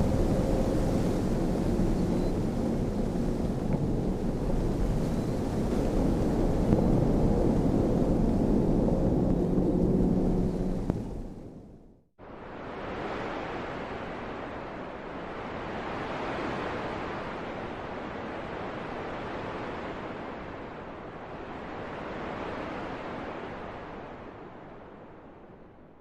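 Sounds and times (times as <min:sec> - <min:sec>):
rushing wind gusts: 0:00.0 - 0:25.4.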